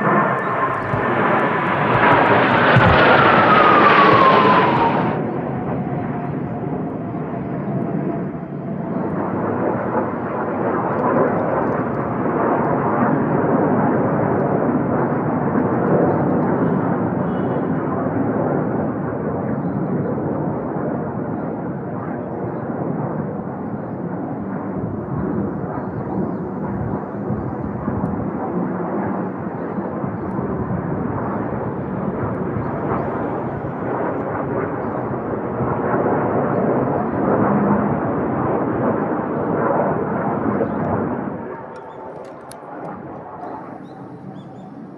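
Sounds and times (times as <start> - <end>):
jet engines roaring overhead: 0.0 - 44.9.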